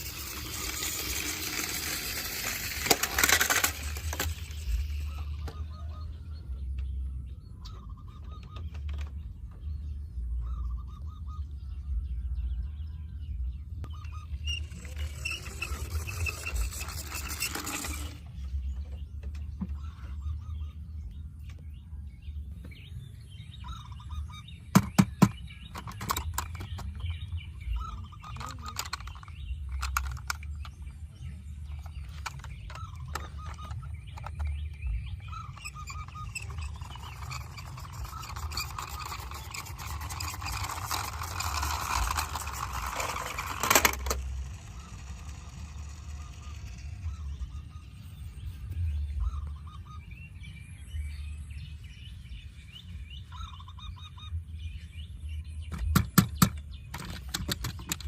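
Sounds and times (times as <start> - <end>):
toy vehicle clicks and knocks: 0.0 - 5.8, 13.8 - 19.8, 24.7 - 47.7, 55.7 - 58.0
rattling whirr: 0.0 - 21.7, 22.4 - 50.5, 53.1 - 58.0
steady low hum: 0.0 - 56.9.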